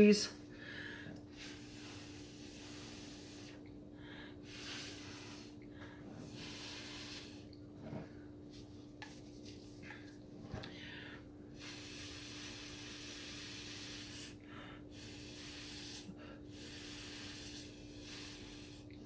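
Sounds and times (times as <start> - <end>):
faint steady hum: 0.0 - 19.0
breath blown through a straw: 1.3 - 3.6, 4.4 - 7.5, 11.5 - 19.0.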